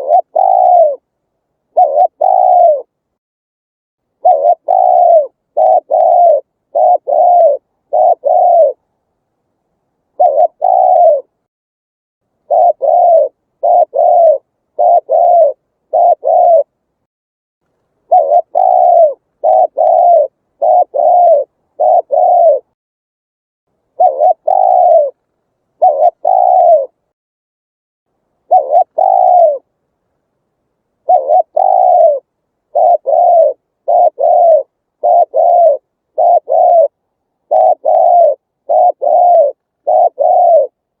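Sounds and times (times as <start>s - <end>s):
dove cooing: 0.0s - 1.1s, 1.7s - 3.0s, 4.2s - 8.8s, 10.1s - 11.4s, 12.4s - 16.8s, 18.0s - 22.8s, 23.9s - 25.2s, 25.8s - 27.0s, 28.4s - 29.7s, 31.0s - 41.0s.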